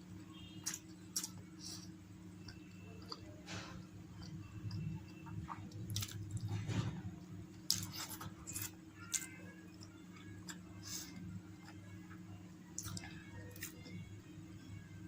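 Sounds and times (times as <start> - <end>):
steady low hum: 0.0 - 15.0
person chewing food: 0.4 - 6.6, 7.5 - 11.9, 12.8 - 14.1.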